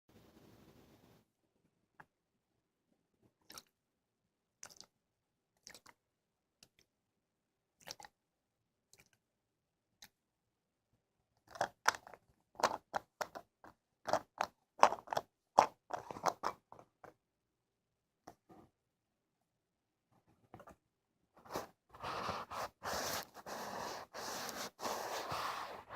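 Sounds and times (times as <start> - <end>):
crackly ear scratching: 21.4 - 25.9.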